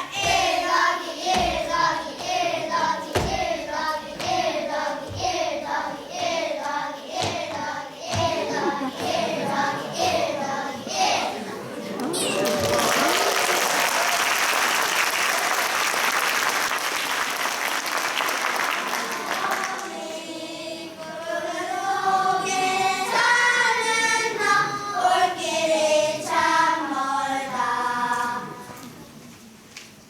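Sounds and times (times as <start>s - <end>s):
young children singing: 0.0s - 13.0s, 18.7s - 29.2s
audience applauding: 11.7s - 20.0s.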